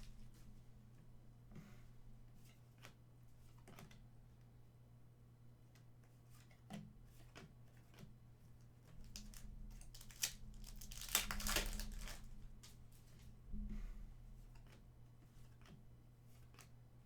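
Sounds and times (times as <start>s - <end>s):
card pack wrapper tearing: 9.0s - 12.4s
cards clicking and rustling: 9.0s - 12.8s.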